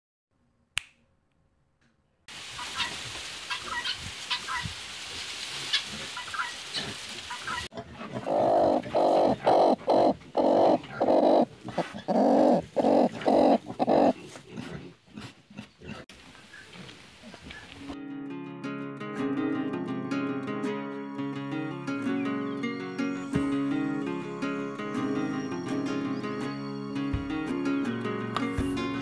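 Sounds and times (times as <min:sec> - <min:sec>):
hen clucking loudly: 0:07.3 - 0:14.2.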